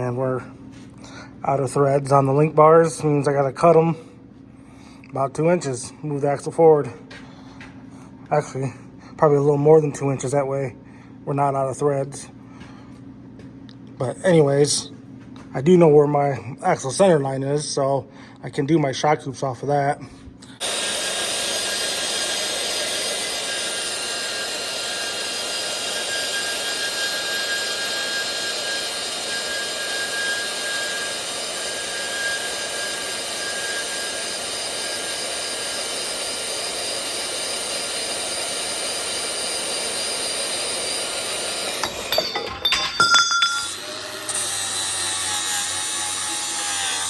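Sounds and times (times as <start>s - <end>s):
angle grinder grinding steel: 20.6s - 47.0s.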